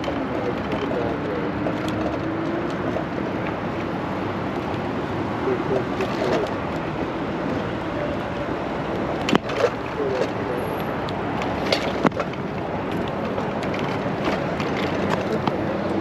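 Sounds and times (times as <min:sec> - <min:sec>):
bicycle tyres rolling on pavement: 0:10.6 - 0:16.0.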